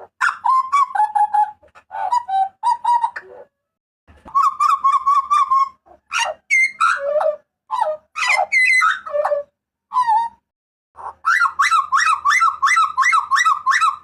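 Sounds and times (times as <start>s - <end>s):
bird calling with trills and whistles: 4.3s - 10.4s, 11.0s - 14.0s.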